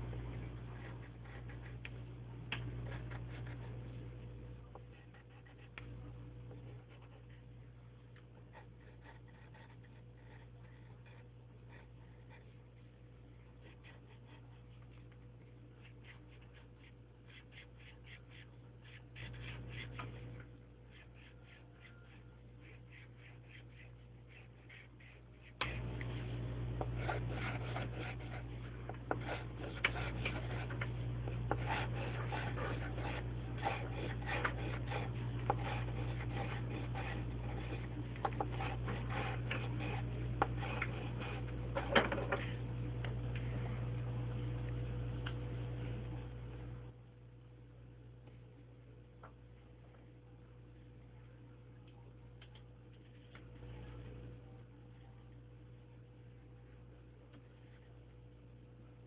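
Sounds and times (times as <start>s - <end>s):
low electrical hum: 0.0s - 59.0s
drawing tool scratching on paper: 8.5s - 12.7s, 13.5s - 20.2s, 20.8s - 25.9s, 26.8s - 30.9s, 31.5s - 42.3s.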